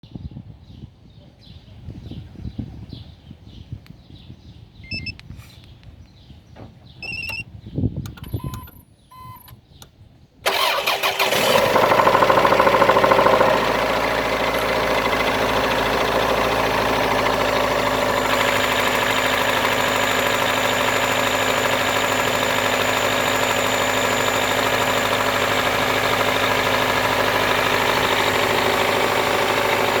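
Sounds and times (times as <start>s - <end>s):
faint beeps: 4.8s - 5.2s, 7.0s - 7.5s, 8.2s - 9.6s
clicks: 8.0s - 8.8s
car engine starting and idling: 8.0s - 9.6s, 10.5s - 30.0s.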